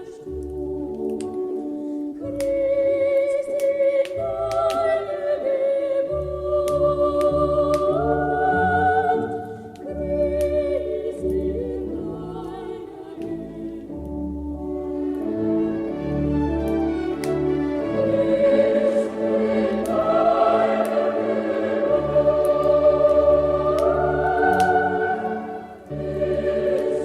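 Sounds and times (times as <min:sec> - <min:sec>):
choir singing a christmas song: 0:00.0 - 0:27.0
sharp clicks: 0:22.3 - 0:25.1.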